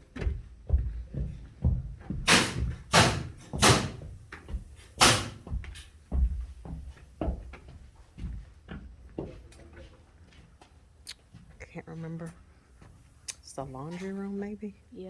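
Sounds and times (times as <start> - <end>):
knocks and thumps: 0.1 - 9.4
sharp strikes: 2.3 - 4.0, 5.0 - 5.4.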